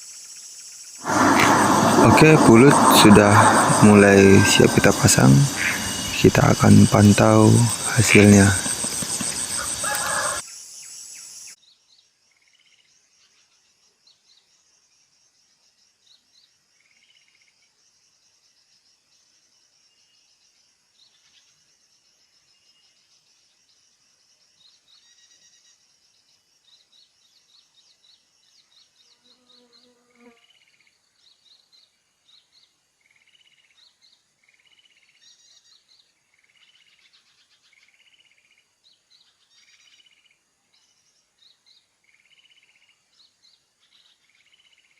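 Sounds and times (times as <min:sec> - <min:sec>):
high insect drone: 0:00.0 - 0:11.6
small birds chirping: 0:30.6 - 0:44.9.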